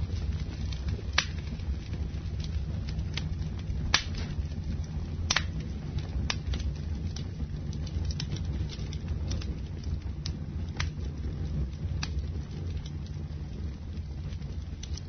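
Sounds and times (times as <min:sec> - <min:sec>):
bonfire rumbling: 0:00.0 - 0:15.0
burning wood crackling and popping: 0:00.0 - 0:15.0.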